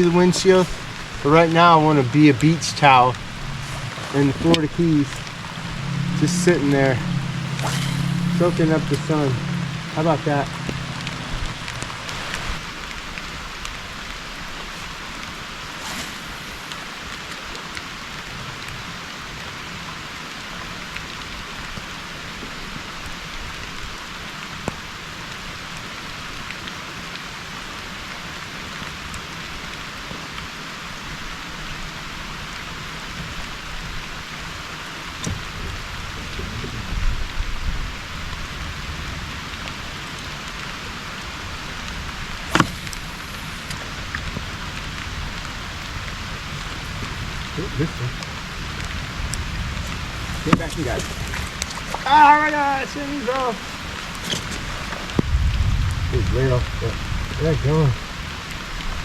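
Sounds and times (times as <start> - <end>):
heavy rain pouring: 0.0 - 59.0
low knocks: 0.4 - 12.6.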